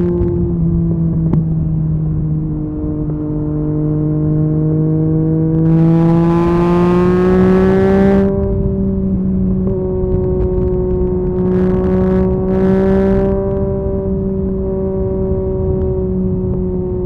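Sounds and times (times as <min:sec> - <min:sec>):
motorcycle engine revving in gear: 0:04.2 - 0:08.6.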